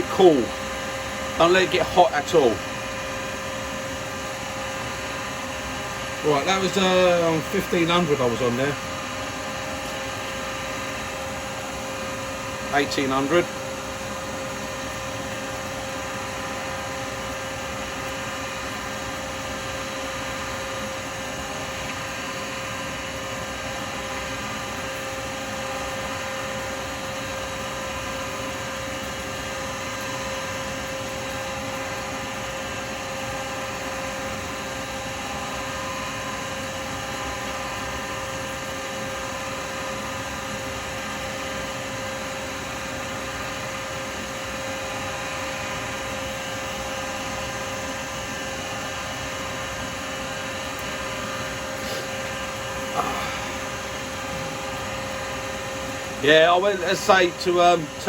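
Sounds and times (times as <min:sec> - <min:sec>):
lathe humming: 0:00.0 - 0:15.7, 0:49.7 - 0:58.0.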